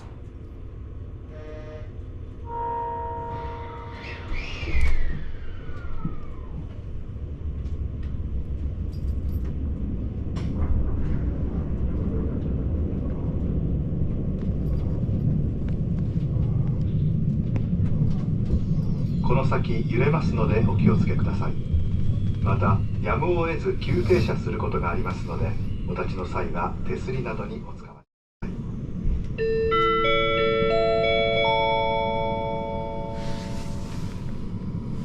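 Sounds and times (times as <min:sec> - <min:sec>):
train running rumble: 0:00.0 - 0:29.6, 0:30.6 - 0:35.0
descending squeal: 0:02.5 - 0:07.4.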